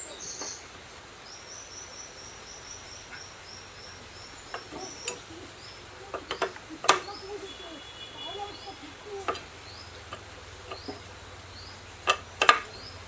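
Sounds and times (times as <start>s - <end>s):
small bird chirping: 0.0s - 13.0s
steady outdoor hiss: 0.0s - 13.0s
faint knocks: 4.4s - 13.0s.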